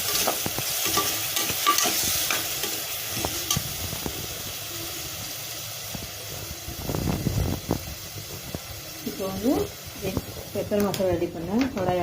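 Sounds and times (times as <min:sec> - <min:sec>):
spoon scraping pan: 0:00.0 - 0:03.7
paste sizzling in hot oil: 0:00.0 - 0:12.0.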